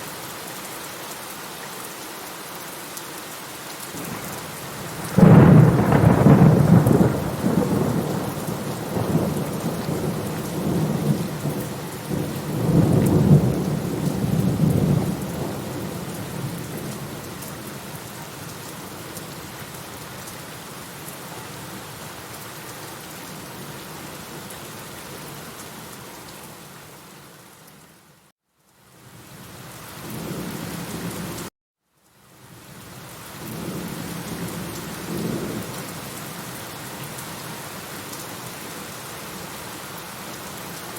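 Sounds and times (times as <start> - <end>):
steady rain: 0.0 - 40.9
rolling thunder: 4.0 - 17.2.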